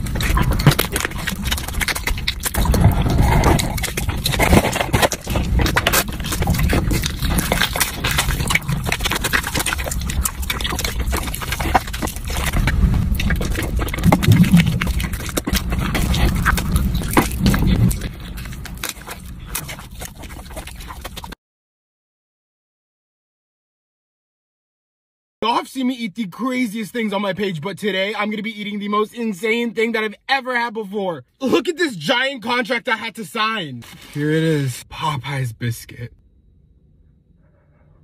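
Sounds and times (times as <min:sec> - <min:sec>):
wet chewing: 0:00.0 - 0:21.4.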